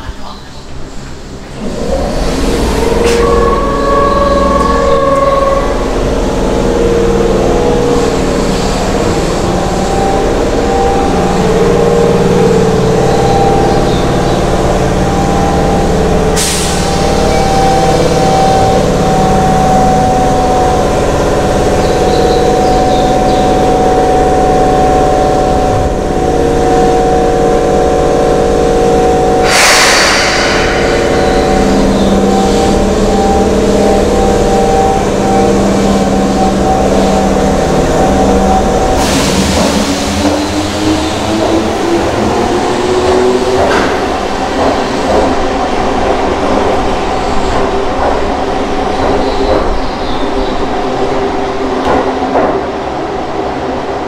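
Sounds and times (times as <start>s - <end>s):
echoing train equipment hum: 0.0s - 54.0s.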